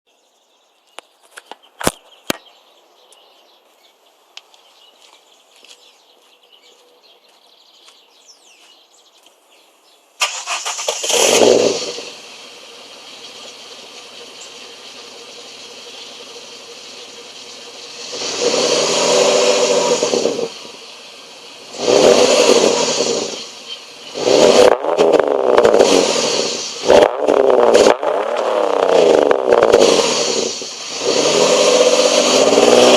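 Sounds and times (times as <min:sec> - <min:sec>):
car engine starting and revving: 0:10.2 - 0:32.9.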